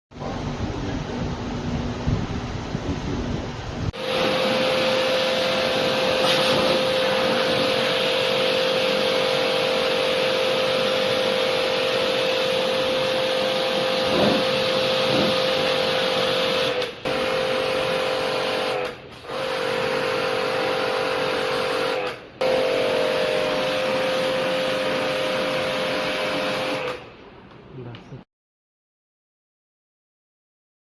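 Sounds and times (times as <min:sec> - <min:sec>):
small electric machine whining: 0:04.0 - 0:18.1
loud hiss: 0:05.6 - 0:08.3.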